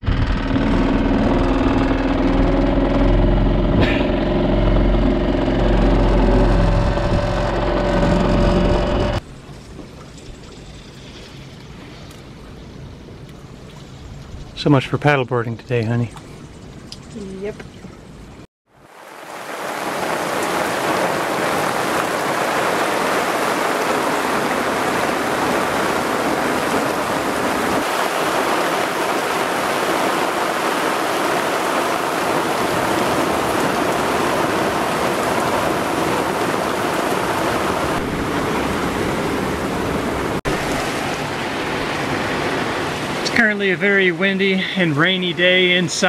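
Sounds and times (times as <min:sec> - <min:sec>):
heavy rain pouring on sea: 0:00.2 - 0:09.2, 0:18.7 - 0:46.0.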